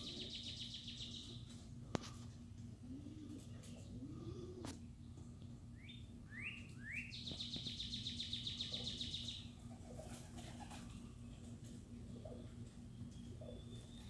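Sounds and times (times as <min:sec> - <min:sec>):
songbird chirping and trilling: 0:00.0 - 0:01.6, 0:05.0 - 0:09.6, 0:12.2 - 0:14.0.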